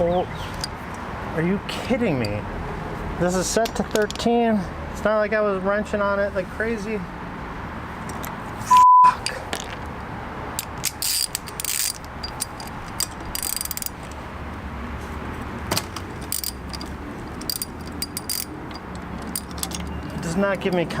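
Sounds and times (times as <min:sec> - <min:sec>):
censor bleep: 0:08.7 - 0:09.2
metal tools clinking: 0:10.6 - 0:14.2, 0:15.8 - 0:21.0.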